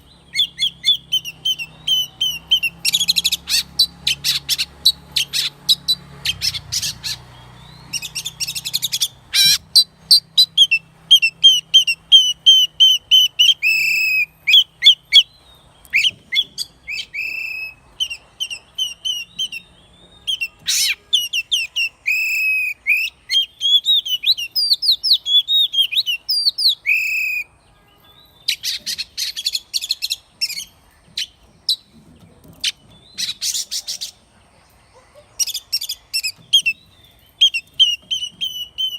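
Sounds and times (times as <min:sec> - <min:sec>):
bird singing whistled phrases: 0:00.0 - 0:27.6, 0:35.4 - 0:38.9.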